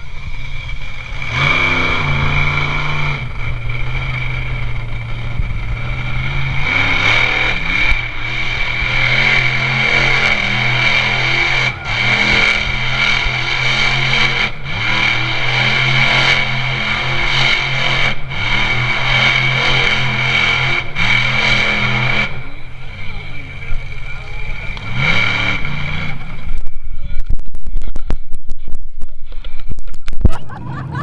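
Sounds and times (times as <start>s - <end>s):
big truck engine revving: 0.0s - 31.0s
steady high whine: 0.0s - 31.0s.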